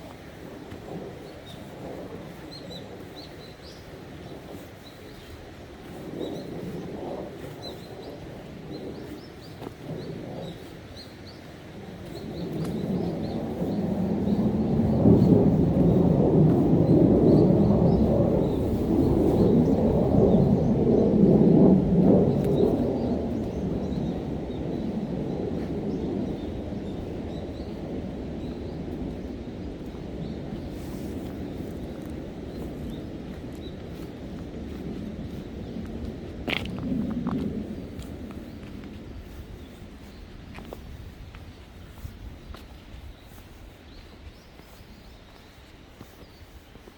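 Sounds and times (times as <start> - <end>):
low outdoor rumble: 0.0 - 46.9
wind on microphone: 0.0 - 46.9
small birds chirping: 2.3 - 6.8, 38.4 - 46.9.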